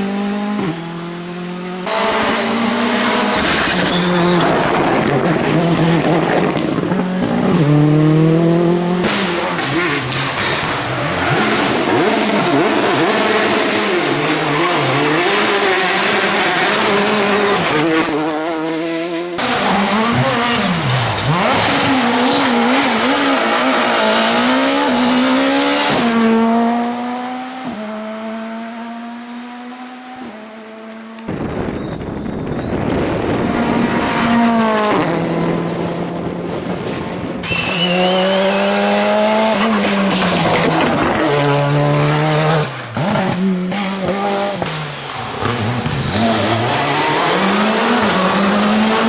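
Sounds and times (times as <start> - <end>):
rally car engines revving: 0.0 - 49.0
tyre squeal: 2.4 - 5.2, 31.7 - 34.0, 37.4 - 39.0.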